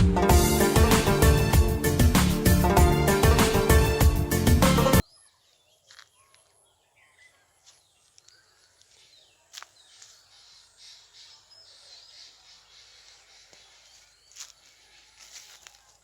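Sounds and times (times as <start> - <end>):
distant bird chirps: 5.0 - 16.0.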